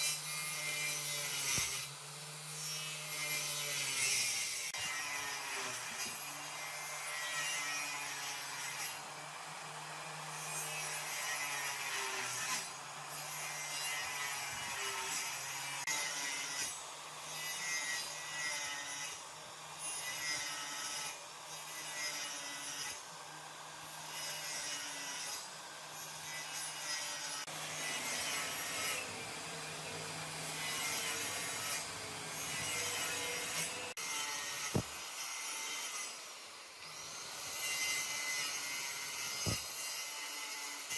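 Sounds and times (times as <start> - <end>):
tool sawing and rasping wood: 0.0 - 40.9.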